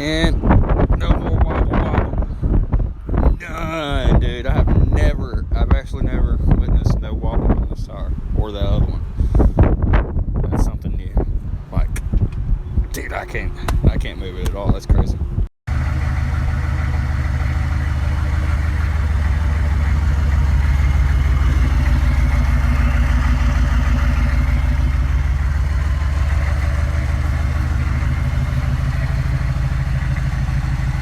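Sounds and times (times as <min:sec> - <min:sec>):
diesel engine running: 0:15.7 - 0:31.0.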